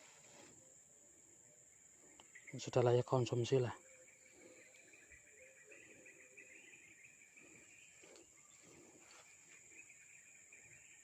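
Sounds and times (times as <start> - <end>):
soft rustles: 0.0 - 0.6
insects chirring: 0.0 - 11.0.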